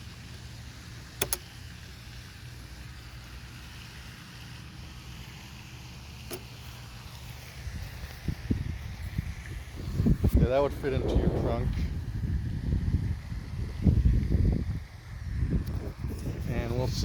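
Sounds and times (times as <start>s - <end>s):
bike frame clicking: 1.2s - 1.5s, 6.2s - 6.7s
low rumble: 8.6s - 16.0s.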